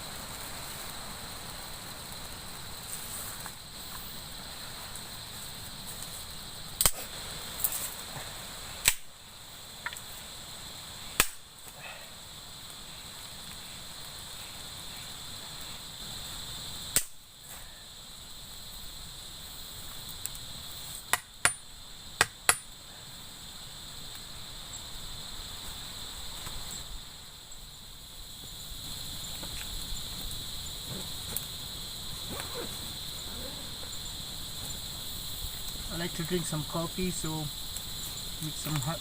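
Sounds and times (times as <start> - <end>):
crickets chirping: 0.0 - 39.0
sharp cracks: 6.8 - 8.0, 8.8 - 9.1, 11.1 - 11.8, 16.9 - 17.2.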